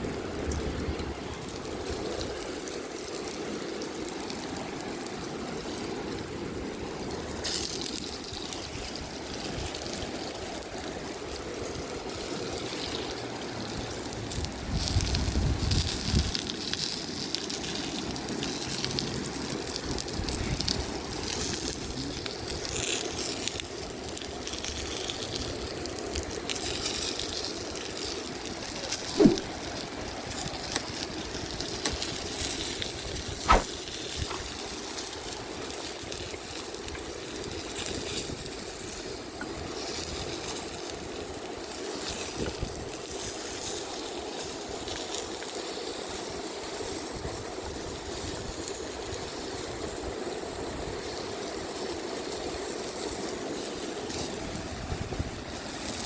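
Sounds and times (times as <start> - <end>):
food sizzling in oil: 0.2 - 56.0
sharp knocks: 29.2 - 29.5, 33.5 - 33.7.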